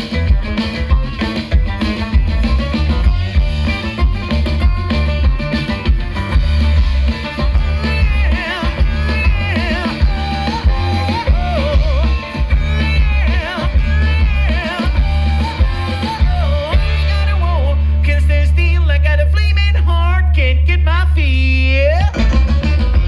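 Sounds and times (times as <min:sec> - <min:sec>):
wavering lead melody: 0:00.0 - 0:18.1
live band playing: 0:00.0 - 0:23.0.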